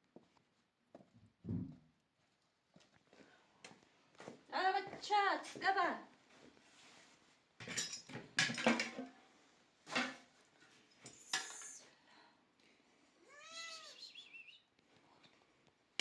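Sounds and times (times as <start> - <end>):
cat meowing: 13.2 - 14.2.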